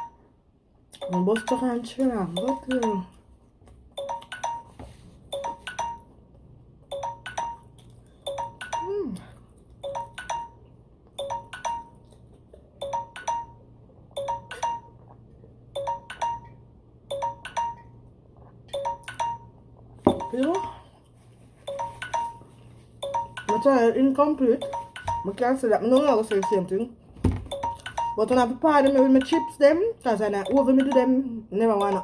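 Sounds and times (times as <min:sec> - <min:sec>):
two-pitch electronic alarm chime: 0:00.0 - 0:00.3, 0:21.7 - 0:23.9, 0:24.5 - 0:25.4, 0:27.5 - 0:29.8.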